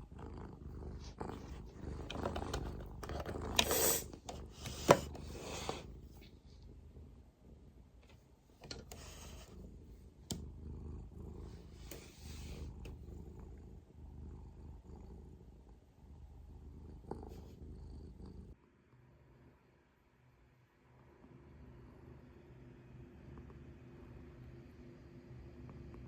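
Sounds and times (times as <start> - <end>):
cat purring: 0.0 - 8.0, 8.7 - 18.6.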